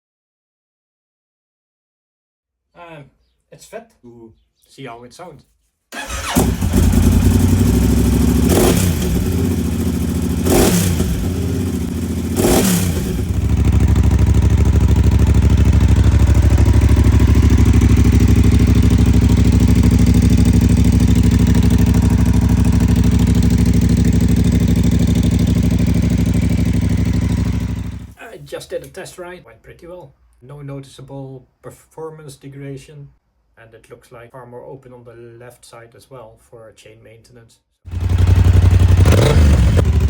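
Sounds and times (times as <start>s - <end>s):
motorcycle engine revving: 6.0s - 28.2s, 37.9s - 40.0s.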